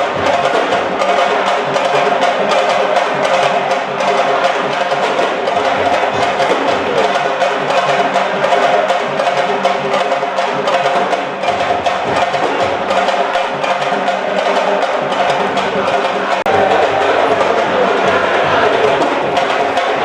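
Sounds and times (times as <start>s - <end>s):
fast steady drumming: 0.0s - 20.0s.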